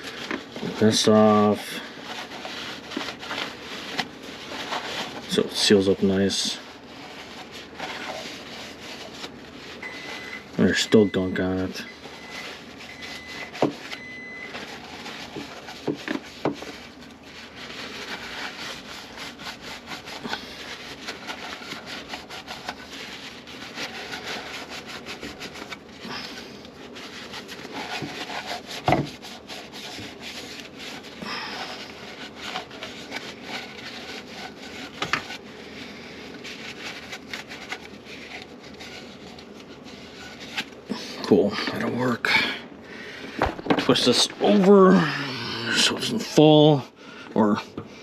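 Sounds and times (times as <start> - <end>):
hand scrubbing and scraping gunk: 0.0 - 47.7.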